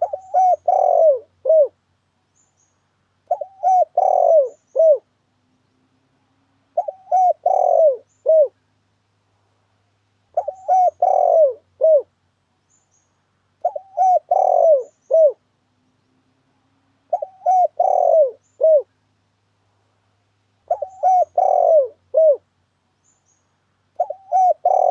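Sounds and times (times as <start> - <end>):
dove cooing: 0.0 - 1.8, 3.3 - 5.1, 6.7 - 8.6, 10.3 - 12.1, 13.6 - 15.5, 17.1 - 19.0, 20.7 - 22.5, 24.0 - 24.9.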